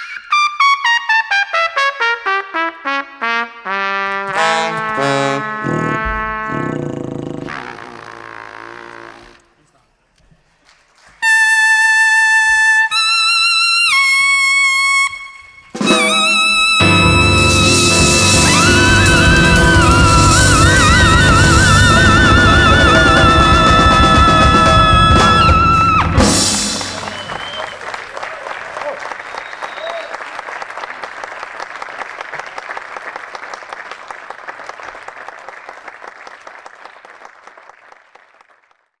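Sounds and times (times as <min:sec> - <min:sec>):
fuller lower accompaniment: 0:00.6 - 0:07.0, 0:15.7 - 0:28.3
solo instrument holding long notes: 0:03.2 - 0:09.4, 0:14.0 - 0:27.9
audience applauding: 0:04.1 - 0:09.4, 0:15.9 - 0:39.0.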